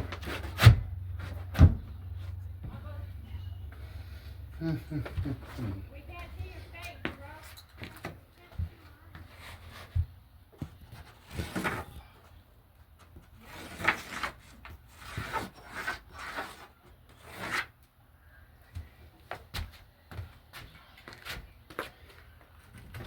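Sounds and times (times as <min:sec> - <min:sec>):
wood scraping: 0:09.1 - 0:12.1, 0:13.2 - 0:17.8.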